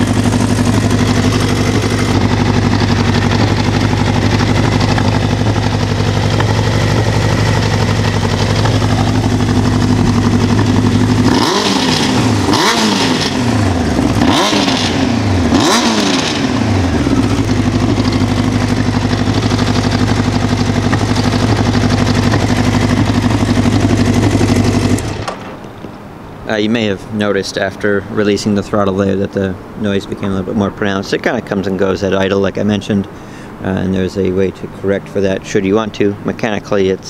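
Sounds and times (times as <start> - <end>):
motorcycle engine idling and revving: 0.0 - 25.6.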